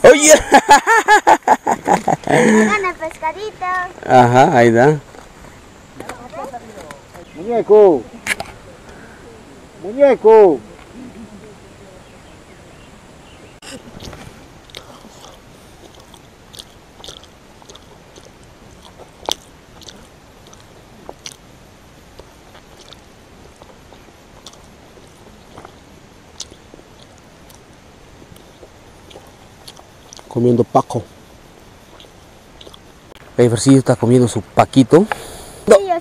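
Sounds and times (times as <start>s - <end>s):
mouth clicks and smacks: 13.6s - 21.5s, 22.1s - 30.3s, 31.7s - 33.2s
person chewing food: 13.7s - 30.3s, 31.7s - 33.2s.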